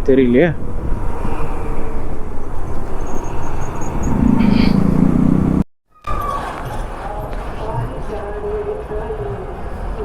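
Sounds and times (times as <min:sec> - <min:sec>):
wind on camera microphone: 0:00.0 - 0:05.2
motorcycle engine and road noise: 0:00.6 - 0:08.0
low drone: 0:01.0 - 0:05.6.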